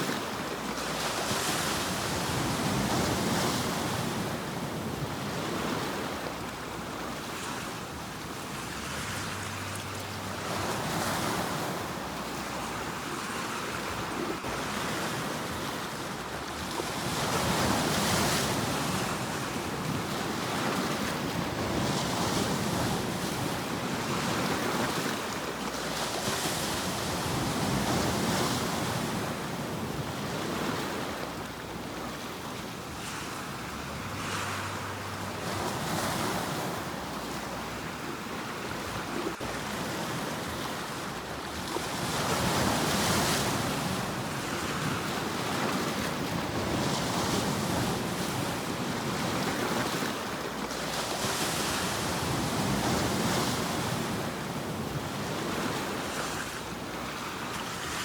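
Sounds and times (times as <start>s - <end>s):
ocean waves breaking on shore: 0.0s - 58.0s.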